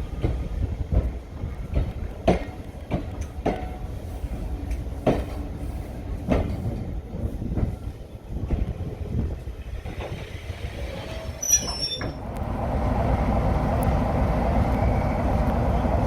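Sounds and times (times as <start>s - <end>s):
diesel train rumbling: 0.0s - 16.0s
train wheels clacking: 0.1s - 7.9s.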